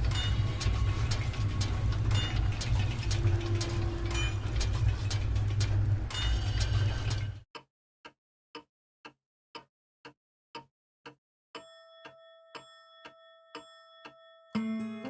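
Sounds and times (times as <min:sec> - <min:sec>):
clock ticking: 0:00.0 - 0:15.0
guitar music: 0:14.6 - 0:15.0.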